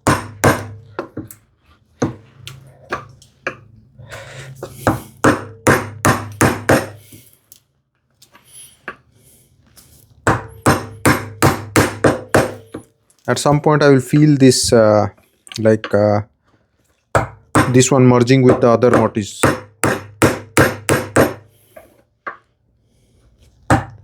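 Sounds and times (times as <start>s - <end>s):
chisel knocking into wood: 0.0s - 1.3s, 4.8s - 7.0s, 10.3s - 12.8s, 17.2s - 17.8s, 18.5s - 21.4s.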